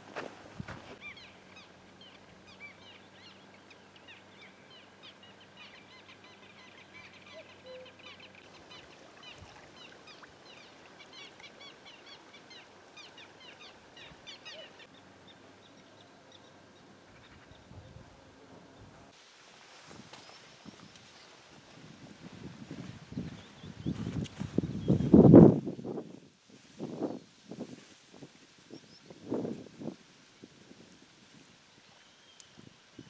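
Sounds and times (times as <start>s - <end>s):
birds chirping: 0.9s - 17.8s.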